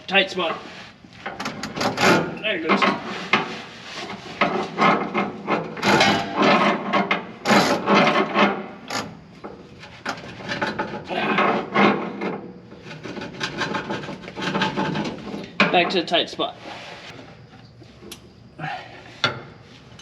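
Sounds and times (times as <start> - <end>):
hand tool scraping metal: 0.4 - 8.6.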